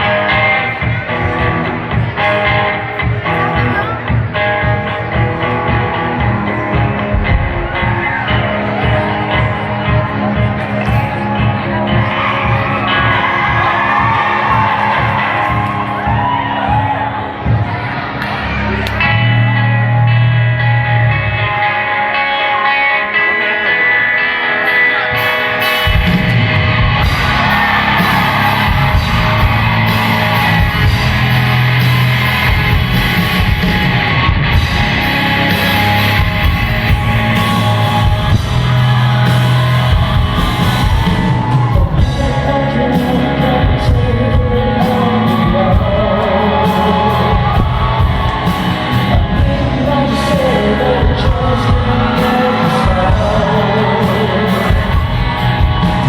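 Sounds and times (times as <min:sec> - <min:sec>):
drums: 0:00.0 - 0:56.0
rock band playing live: 0:00.0 - 0:56.0
person singing: 0:21.4 - 0:56.0.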